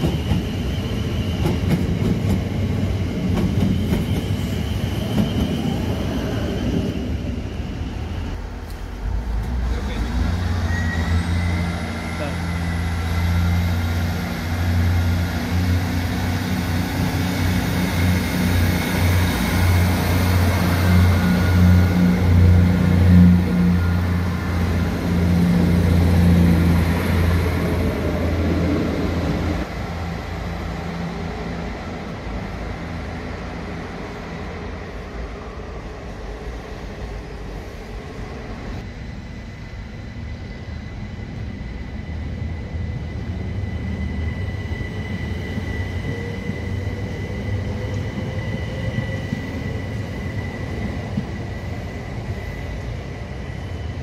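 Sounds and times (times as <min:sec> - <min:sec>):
diesel train engines droning: 0:00.0 - 0:54.0
electric train rumble and whine: 0:00.0 - 0:54.0.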